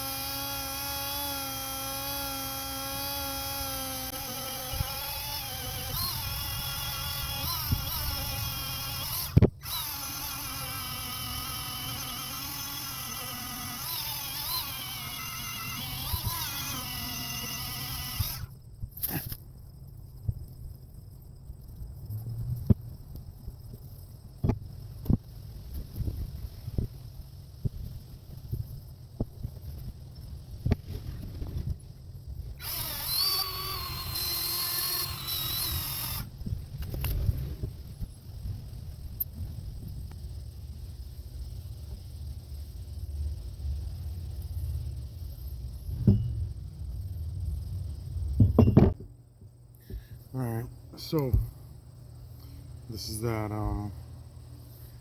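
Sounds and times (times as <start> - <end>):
rotary tool whining: 0.0 - 19.4, 32.5 - 38.1
knock: 48.4 - 49.1.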